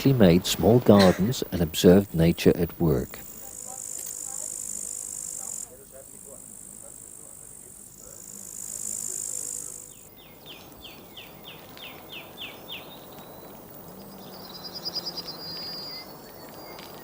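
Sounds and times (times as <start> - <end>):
high insect buzz: 0.0 - 17.0
bird singing down-slurred notes: 8.0 - 17.0.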